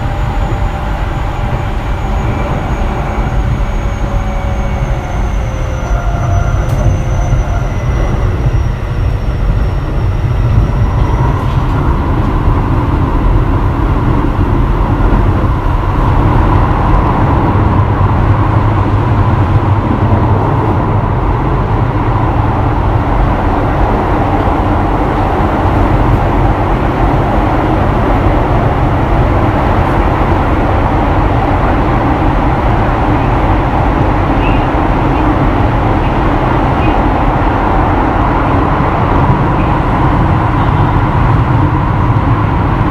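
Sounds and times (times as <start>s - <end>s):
train wheels rolling on rails: 0.0s - 42.9s.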